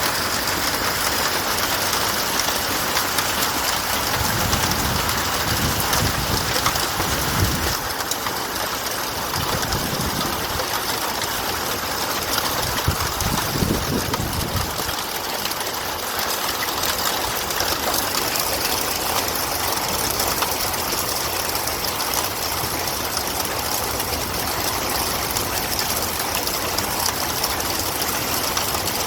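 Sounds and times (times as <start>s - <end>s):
heavy rain and hail pelting: 0.0s - 29.0s.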